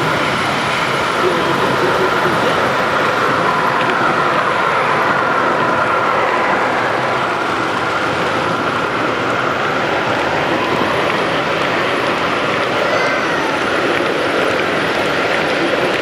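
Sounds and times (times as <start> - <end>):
exhibition hall noise: 0.0 - 16.0
model train whirring: 0.0 - 16.0.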